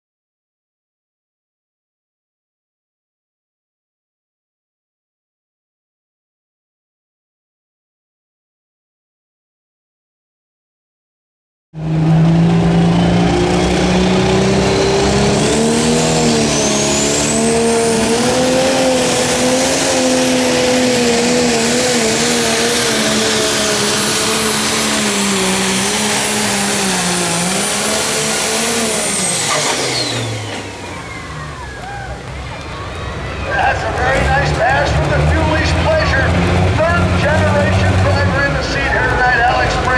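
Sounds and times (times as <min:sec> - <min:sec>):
diesel engine running flat out: 0:11.8 - 0:39.9
high turbo whine: 0:11.8 - 0:39.9.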